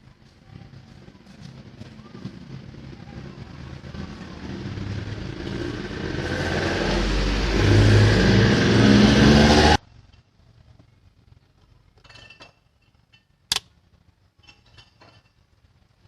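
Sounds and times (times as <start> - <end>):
vehicle engine revving: 3.8 - 9.8.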